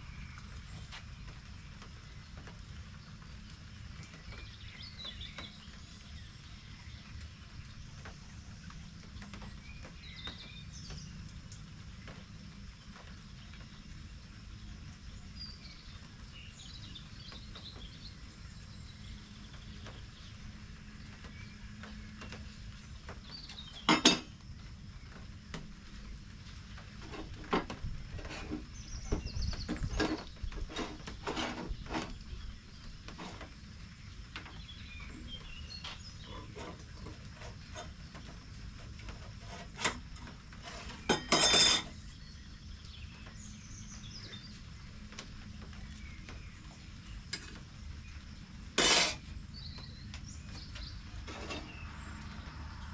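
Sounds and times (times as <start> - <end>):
hard objects clinking and knocking: 48.8 - 49.2.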